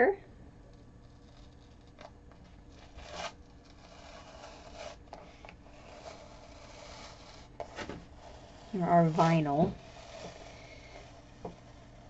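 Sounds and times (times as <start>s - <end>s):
vinyl being peeled off canvas: 1.1s - 8.2s.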